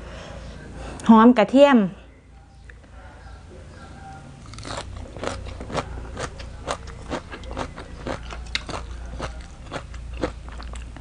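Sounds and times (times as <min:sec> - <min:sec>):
crunchy chewing of salad: 0:04.1 - 0:11.0.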